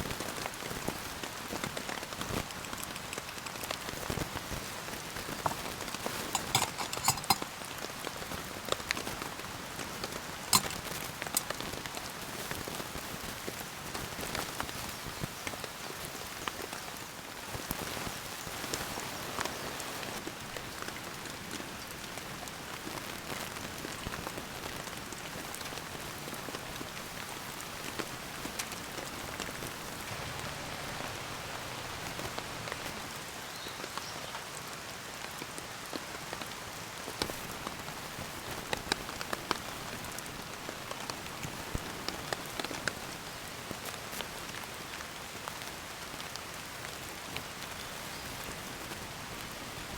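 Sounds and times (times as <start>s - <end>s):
raindrops tapping close by: 0.0s - 49.9s
steady rain falling: 0.0s - 49.9s.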